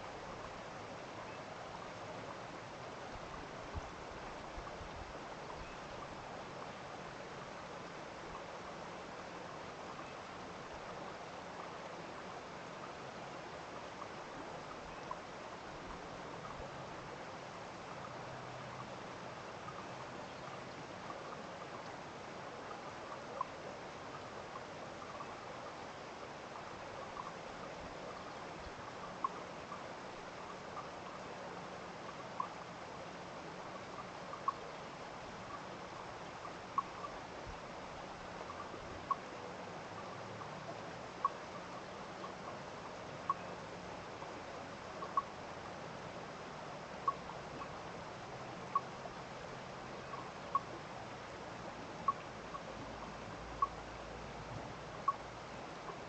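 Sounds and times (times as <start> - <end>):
stream water flowing: 0.0 - 56.0
faint ticks: 17.8 - 22.0, 26.5 - 31.3, 32.0 - 32.7, 33.6 - 34.8, 35.4 - 37.6, 50.0 - 50.8, 52.0 - 53.9.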